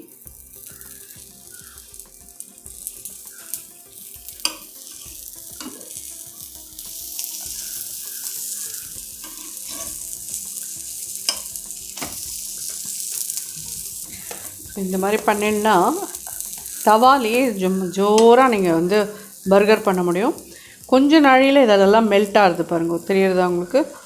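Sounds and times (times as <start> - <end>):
buns sizzling on a griddle: 0.0 - 24.0
spatula tapping a pan: 4.3 - 5.9, 9.1 - 10.1, 11.2 - 14.5.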